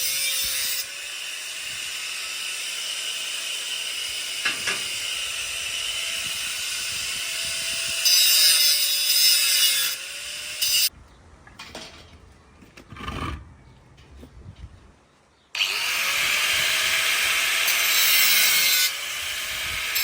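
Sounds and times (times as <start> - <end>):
power tool running on wood: 15.6 - 20.0.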